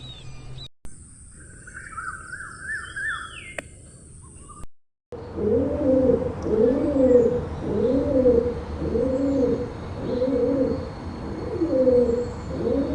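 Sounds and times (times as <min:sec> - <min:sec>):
pigeon cooing: 0:05.2 - 0:12.9.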